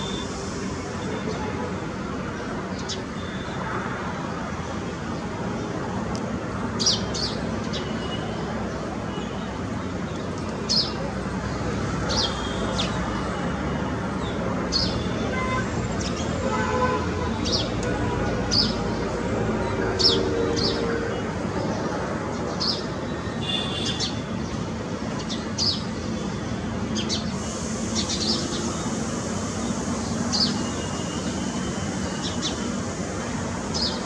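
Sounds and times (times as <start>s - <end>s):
small birds chirping: 2.3s - 3.6s, 6.7s - 13.4s, 21.6s - 34.0s.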